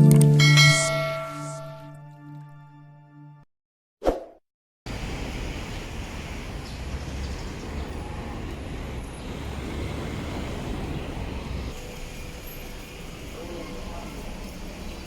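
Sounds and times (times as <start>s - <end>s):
traffic noise with low rumble: 4.9s - 15.0s.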